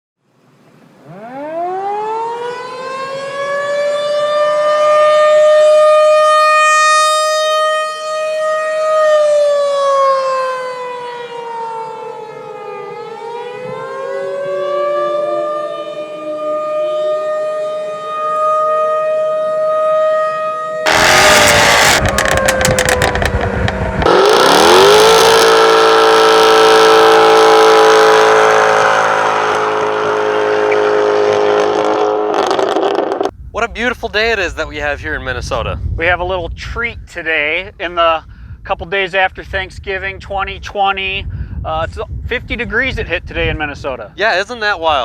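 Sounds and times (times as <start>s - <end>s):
warning siren wailing: 1.0s - 33.3s.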